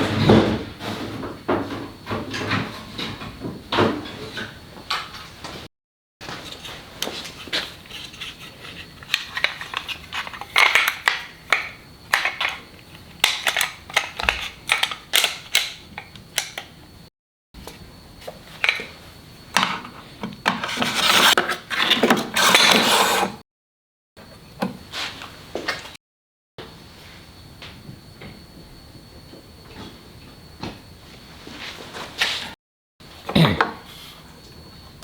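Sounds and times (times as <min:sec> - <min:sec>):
wood and tools knocking and scraping: 0:00.0 - 0:05.6, 0:06.2 - 0:16.7, 0:19.6 - 0:23.3.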